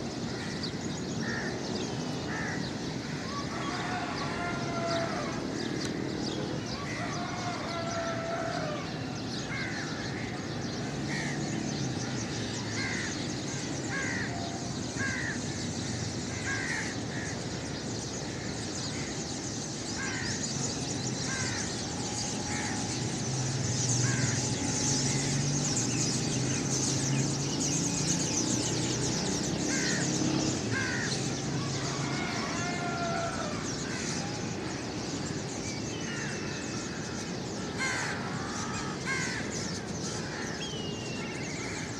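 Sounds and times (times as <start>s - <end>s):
harsh caw-like bird calls: 0.0s - 41.9s.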